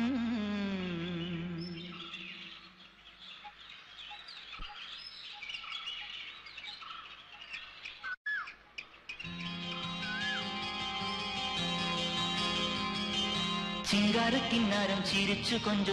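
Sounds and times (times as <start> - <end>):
small birds chirping: 1.0 - 11.4.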